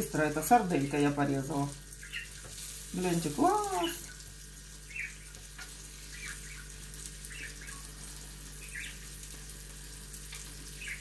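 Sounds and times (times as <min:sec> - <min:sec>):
meat sizzling on a grill: 0:00.0 - 0:11.0
cage bird chirping: 0:02.0 - 0:02.5, 0:04.8 - 0:09.2, 0:10.6 - 0:11.0.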